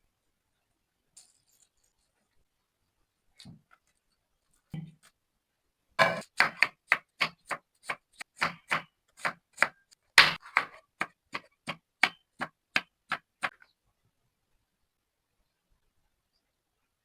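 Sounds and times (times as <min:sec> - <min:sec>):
knife chopping on cutting board: 0:06.0 - 0:13.5.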